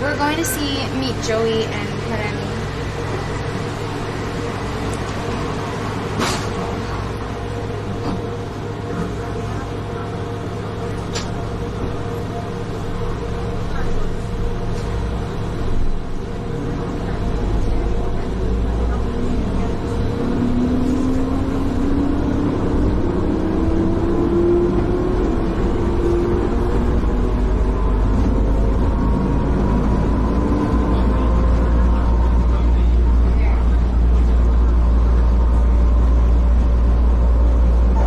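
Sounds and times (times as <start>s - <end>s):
vehicle running rumble: 0.0s - 38.0s
vehicle whine rising in pitch: 19.2s - 32.9s.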